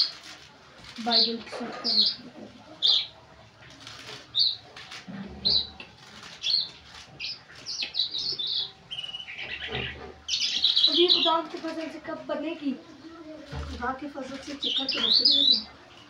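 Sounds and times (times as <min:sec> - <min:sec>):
small bird chirping: 0:04.3 - 0:04.7, 0:05.4 - 0:11.8, 0:14.6 - 0:15.7.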